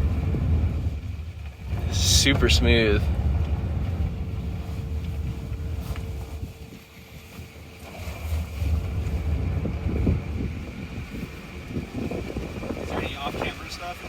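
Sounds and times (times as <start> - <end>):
road and tyre noise: 0.0 - 14.0.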